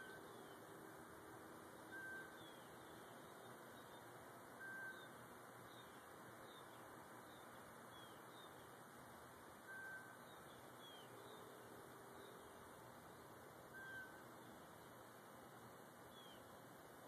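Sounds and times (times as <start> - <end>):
steady hiss: 0.0 - 17.0
short whistled bird notes: 4.6 - 5.1, 13.8 - 14.2.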